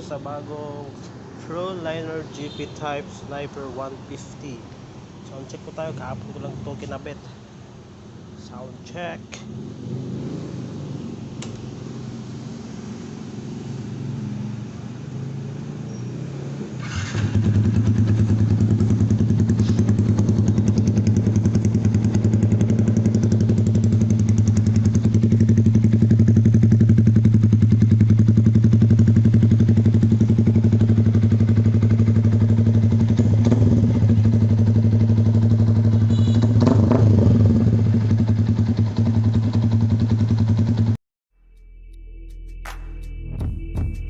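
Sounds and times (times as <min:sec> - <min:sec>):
motorcycle engine idling: 0:17.0 - 0:36.6.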